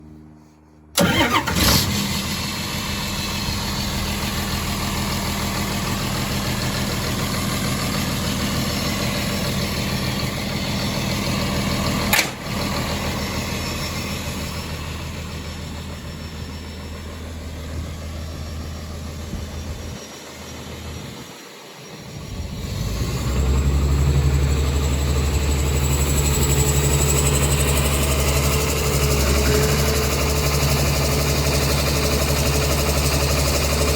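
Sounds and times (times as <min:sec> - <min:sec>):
high steady whine: 0:00.0 - 0:32.6
diesel engine idling: 0:01.0 - 0:33.9
sharp click: 0:12.1 - 0:12.4.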